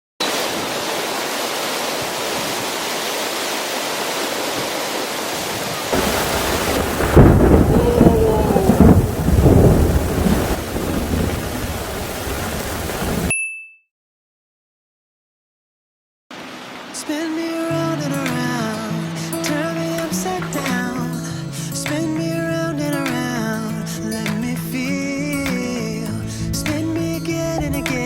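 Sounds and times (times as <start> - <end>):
heavy rain falling: 0.2 - 13.3, 16.3 - 21.3
thunder rumbling: 5.7 - 13.3.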